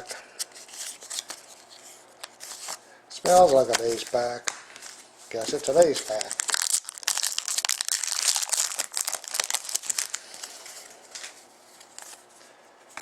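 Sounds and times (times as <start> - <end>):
card pack wrapper crinkling: 5.4 - 10.8.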